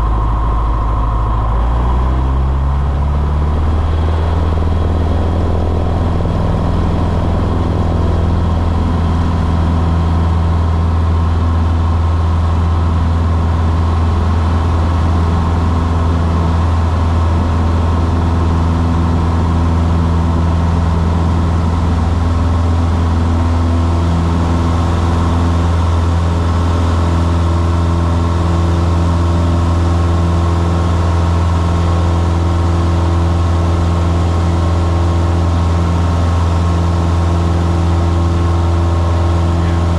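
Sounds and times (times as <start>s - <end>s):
plane engine and propeller humming: 0.0s - 39.9s.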